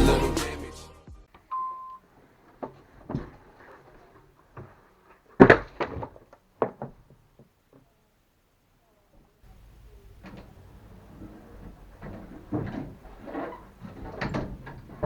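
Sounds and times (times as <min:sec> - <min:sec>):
knocks and thumps: 0:02.5 - 0:07.8.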